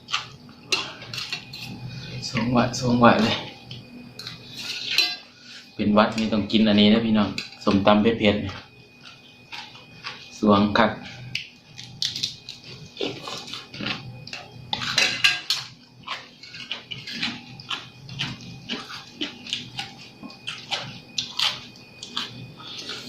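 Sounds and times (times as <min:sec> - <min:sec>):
wet chewing and slurping: 0:11.4 - 0:23.0.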